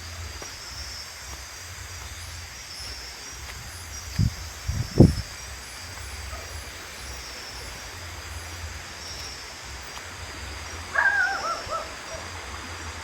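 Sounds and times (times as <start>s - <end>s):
insects chirping: 0.0s - 13.0s
animal call: 10.9s - 12.3s.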